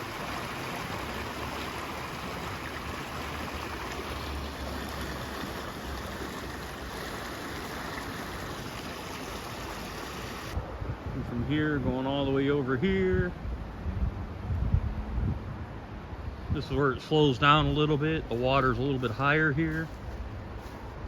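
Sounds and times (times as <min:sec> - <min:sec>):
creek water rushing: 0:00.0 - 0:10.9, 0:15.9 - 0:21.0.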